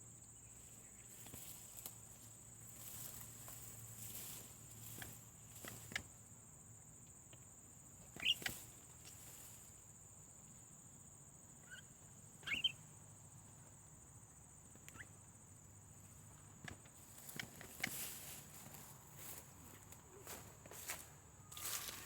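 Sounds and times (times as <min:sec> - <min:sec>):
high insect drone: 0:00.0 - 0:22.0
short bird chirps: 0:08.2 - 0:08.5, 0:12.4 - 0:12.8.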